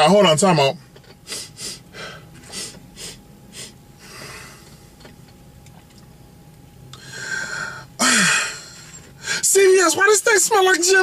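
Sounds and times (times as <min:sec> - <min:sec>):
man sniffing: 0:01.2 - 0:04.8.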